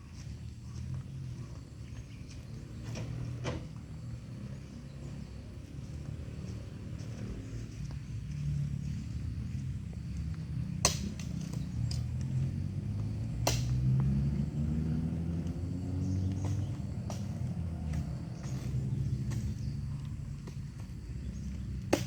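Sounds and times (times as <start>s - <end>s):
bulldozer diesel engine rumbling: 0.0s - 22.0s
sharp metallic knocks: 10.8s - 11.6s, 13.4s - 13.9s.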